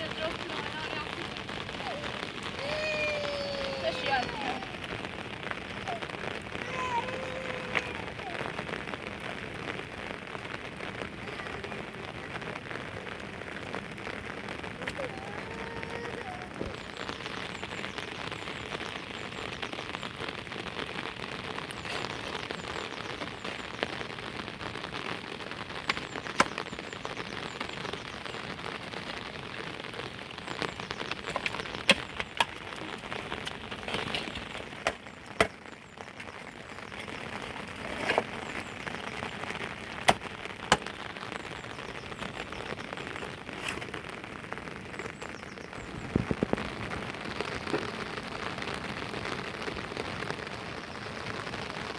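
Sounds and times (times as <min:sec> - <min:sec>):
raindrop taps: 0:00.0 - 0:50.7
heavy rain: 0:00.0 - 0:51.9.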